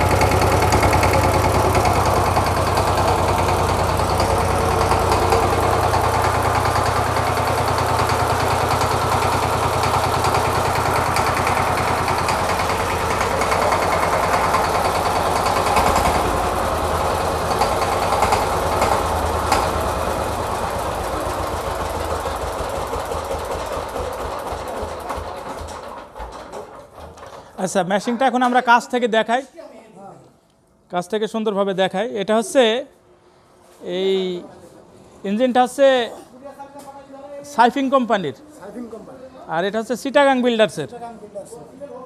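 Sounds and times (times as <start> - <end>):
diesel engine chugging: 0.0 - 27.6.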